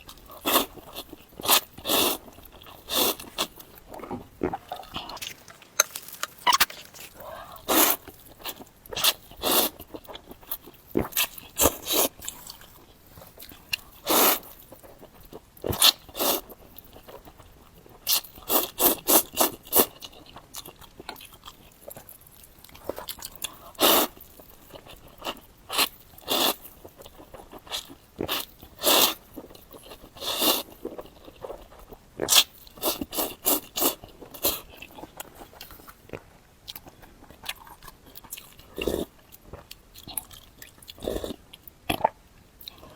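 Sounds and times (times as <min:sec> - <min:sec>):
chewing and mouth sounds: 0:00.0 - 0:42.9.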